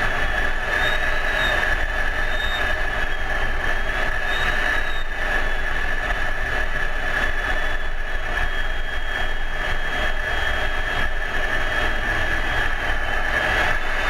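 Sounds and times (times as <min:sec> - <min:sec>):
faint high wavering whine: 0:00.0 - 0:14.0
jet engine and airflow noise: 0:00.0 - 0:14.0.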